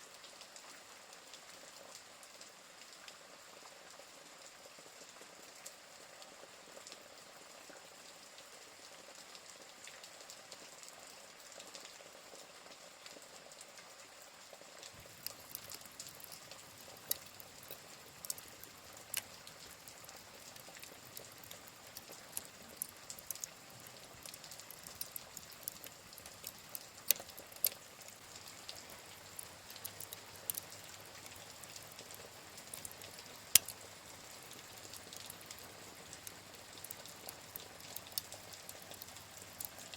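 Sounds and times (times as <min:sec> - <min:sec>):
rain hiss: 0:00.0 - 0:39.9
wood fire crackling and popping: 0:15.0 - 0:39.9.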